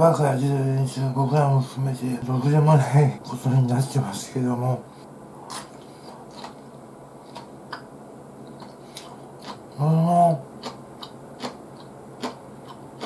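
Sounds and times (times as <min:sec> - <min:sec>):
chewing mouth clicks: 0:07.3 - 0:09.7, 0:10.6 - 0:13.0
person humming: 0:09.8 - 0:10.4.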